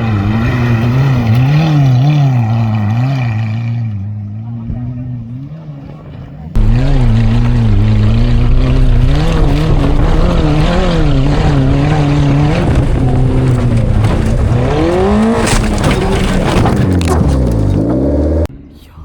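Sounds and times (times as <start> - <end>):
rally car engine revving: 0.0 - 18.5
clatter of knocks: 8.6 - 18.0.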